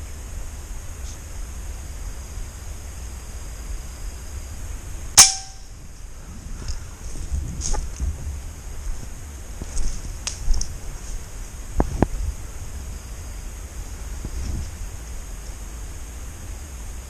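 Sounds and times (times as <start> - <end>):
air rifle shot: 5.2 - 5.7
brief metallic ring: 5.2 - 5.7.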